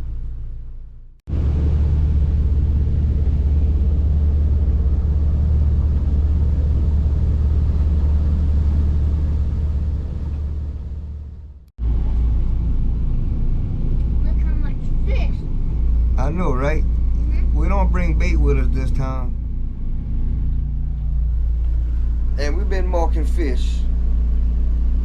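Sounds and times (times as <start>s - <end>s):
boat motor running: 1.3s - 25.0s.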